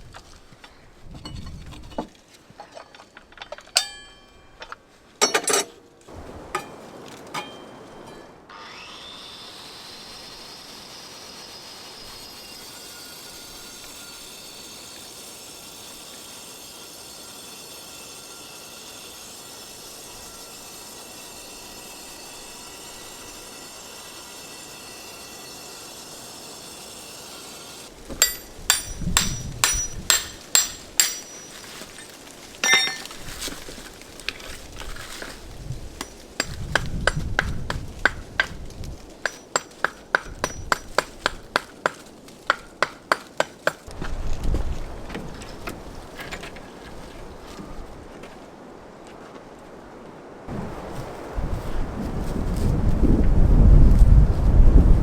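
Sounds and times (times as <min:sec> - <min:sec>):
hammer striking steel chisel: 0:03.8 - 0:05.8, 0:28.1 - 0:31.9, 0:32.6 - 0:33.2, 0:36.0 - 0:38.6, 0:39.2 - 0:44.0.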